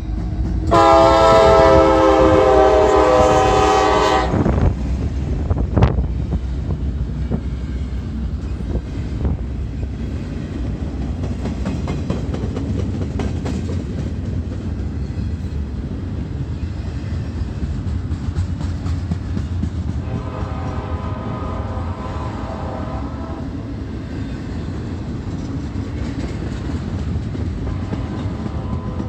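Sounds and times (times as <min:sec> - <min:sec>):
freight train rumbling past: 0:00.0 - 0:29.0.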